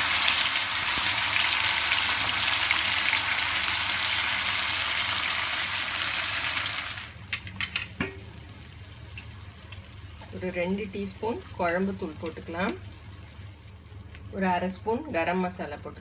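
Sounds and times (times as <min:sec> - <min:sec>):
paste sizzling in hot oil: 0:00.0 - 0:07.1.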